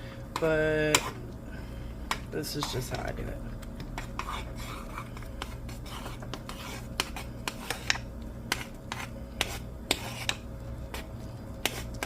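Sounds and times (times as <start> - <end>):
utensil scraping a pot: 4.0 - 12.0.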